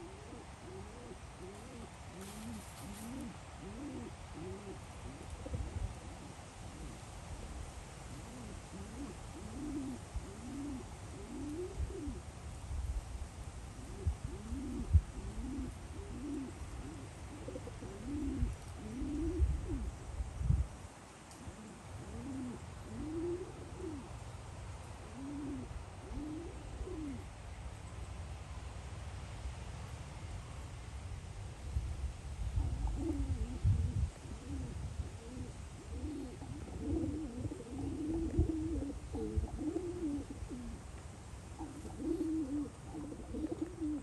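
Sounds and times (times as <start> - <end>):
bird cooing: 0.0 - 12.3, 13.7 - 20.1, 21.3 - 24.3, 24.9 - 27.4, 32.6 - 40.9, 41.5 - 44.0.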